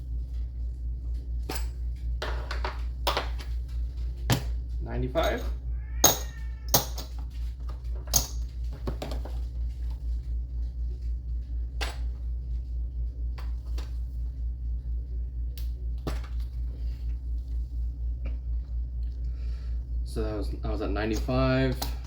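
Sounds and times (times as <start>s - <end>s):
pulsing low hum: 0.0s - 22.0s
coins clicking and tapping: 5.2s - 7.1s.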